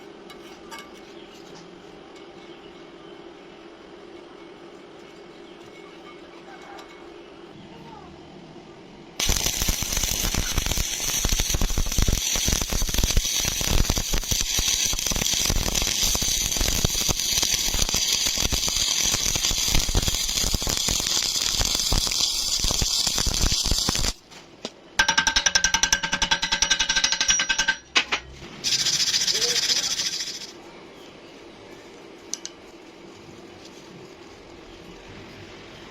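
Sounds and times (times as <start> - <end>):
welding arc crackling: 9.2 - 24.3, 28.6 - 30.6
fast even rattle: 28.7 - 30.6.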